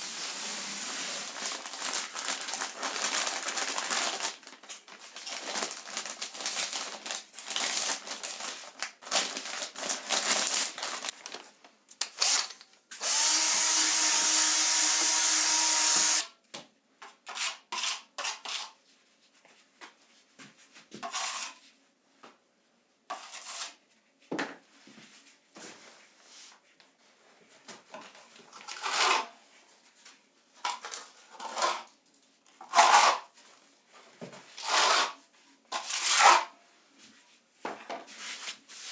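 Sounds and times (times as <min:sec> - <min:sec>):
power drill running: 0:13.0 - 0:16.3
tools scraping on a wall: 0:17.3 - 0:18.8, 0:21.0 - 0:21.6, 0:23.1 - 0:23.8, 0:28.6 - 0:29.3, 0:32.6 - 0:33.3, 0:34.6 - 0:36.5.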